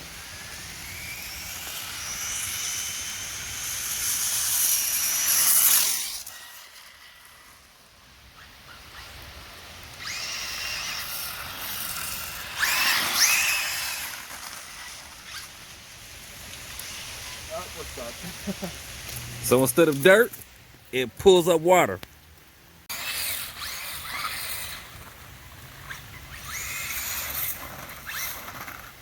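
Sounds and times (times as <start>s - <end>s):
electric motor whine: 0.0s - 7.7s, 9.9s - 15.7s
tyres hissing in water: 0.0s - 7.9s, 10.0s - 20.1s.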